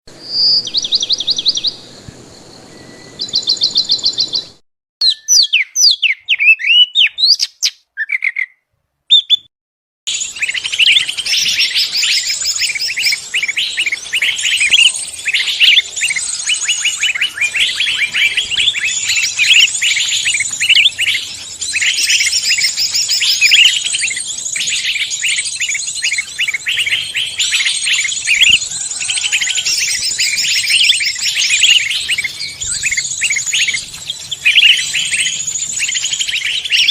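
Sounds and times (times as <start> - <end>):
chorus of birds chirping: 0.1 - 9.4, 10.1 - 36.9
bird trilling: 2.7 - 9.5, 10.1 - 36.9
bird whistling sliding notes: 10.2 - 36.9.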